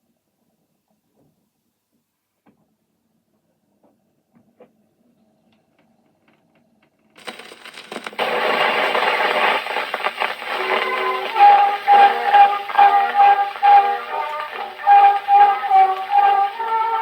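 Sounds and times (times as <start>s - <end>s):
record crackle and hiss: 5.6s - 17.0s
gramophone needle dropping into groove: 7.2s - 17.0s
old instrumental recording: 8.1s - 17.0s.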